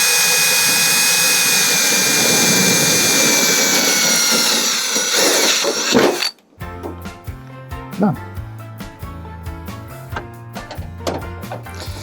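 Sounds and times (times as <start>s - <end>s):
electric drill whining through metal: 0.0s - 6.3s, 11.7s - 12.0s.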